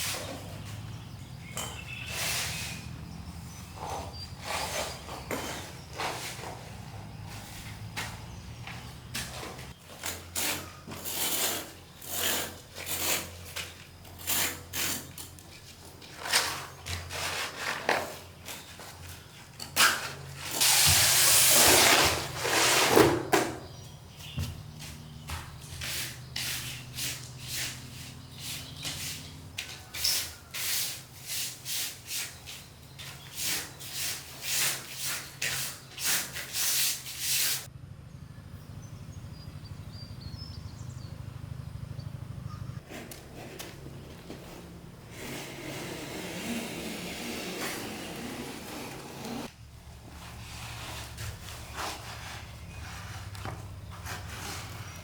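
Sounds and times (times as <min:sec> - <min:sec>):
hand tool rubbing bamboo: 0:03.7 - 0:23.0, 0:24.8 - 0:37.7, 0:42.8 - 0:55.0.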